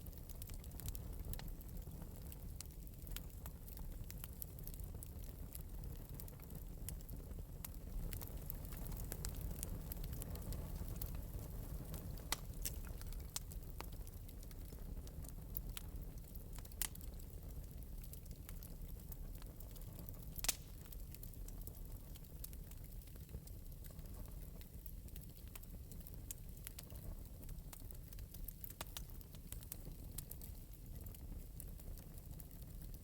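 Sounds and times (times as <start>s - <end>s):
fire low rumble: 0.0s - 33.0s
wood fire crackling: 0.0s - 33.0s
loud fire pops: 5.5s - 14.8s, 20.2s - 21.3s.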